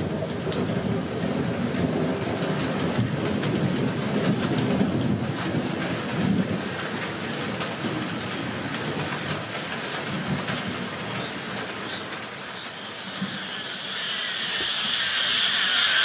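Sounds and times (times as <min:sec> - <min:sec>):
falling rain: 0:00.0 - 0:16.0
frogs croaking: 0:11.3 - 0:16.0
higher frog chorus: 0:12.4 - 0:16.0.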